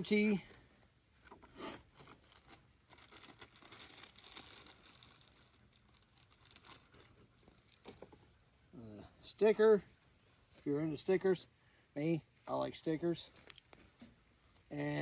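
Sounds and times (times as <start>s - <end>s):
paper and packaging rustling: 1.2s - 8.2s.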